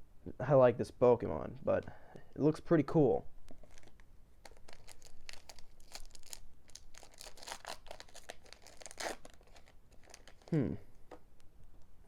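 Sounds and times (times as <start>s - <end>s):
foil wrapper crinkling and tearing: 3.5s - 10.6s.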